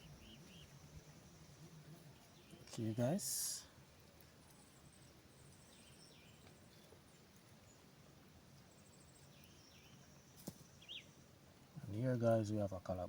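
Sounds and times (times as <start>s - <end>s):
distant bird chirps: 0.0s - 3.5s, 8.8s - 11.4s.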